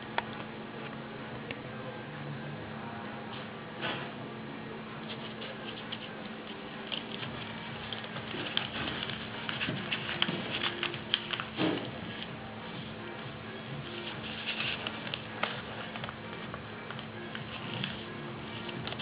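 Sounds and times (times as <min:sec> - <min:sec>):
steady low hum: 0:00.0 - 0:19.0
paper crackling and rustling: 0:05.0 - 0:19.0.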